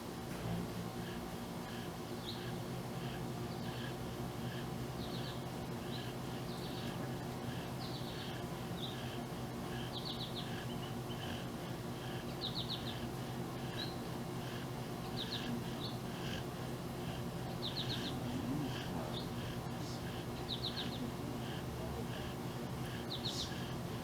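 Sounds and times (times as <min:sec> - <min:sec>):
steady low hum: 0:00.0 - 0:24.0
songbirds chirping: 0:00.9 - 0:24.0.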